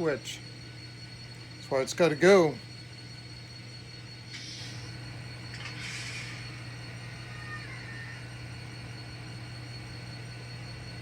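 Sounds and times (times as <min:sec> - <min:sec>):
model train motor hum: 0:04.3 - 0:08.2.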